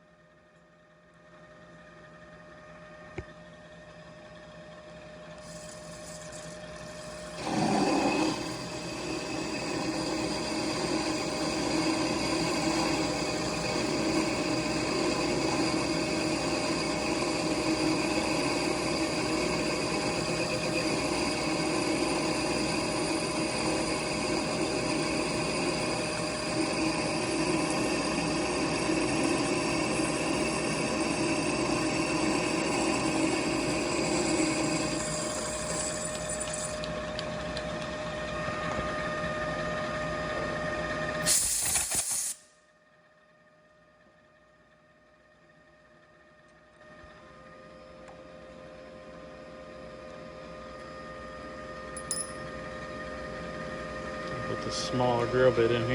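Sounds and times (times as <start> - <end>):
machine tool whining: 5.2 - 42.1.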